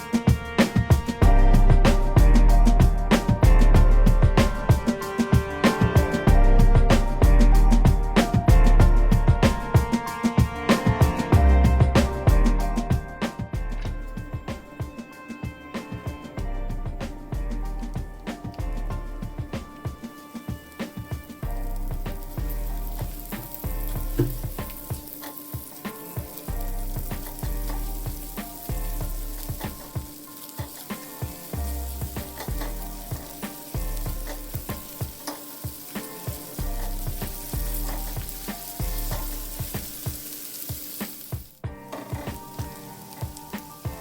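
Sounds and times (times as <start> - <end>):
background music: 0.0 - 44.0
food sizzling in a pan: 18.3 - 44.0.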